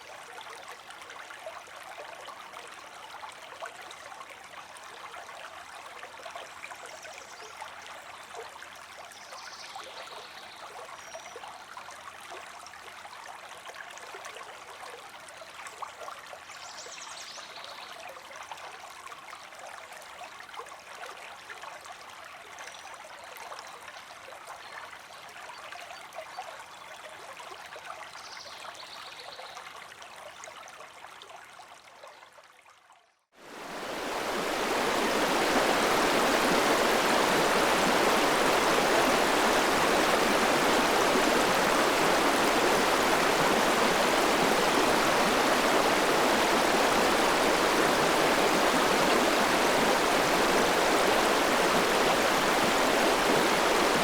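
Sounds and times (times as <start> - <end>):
river water flowing: 0.0 - 9.0, 33.4 - 54.0.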